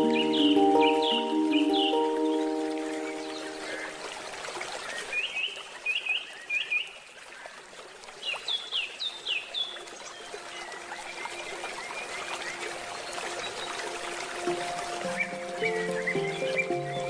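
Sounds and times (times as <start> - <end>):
handpan notes: 0.0 - 4.6, 12.2 - 17.0
birds chirping: 0.0 - 7.0, 8.3 - 17.0
stream flowing: 0.0 - 17.0.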